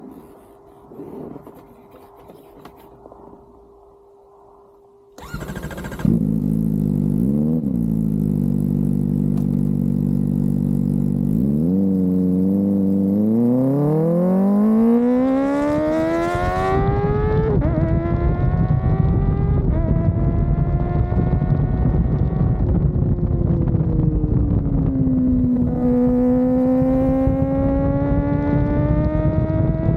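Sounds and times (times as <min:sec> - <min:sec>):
wind noise: 0:00.0 - 0:06.3, 0:15.2 - 0:29.9
motorcycle engine revving: 0:05.2 - 0:29.9.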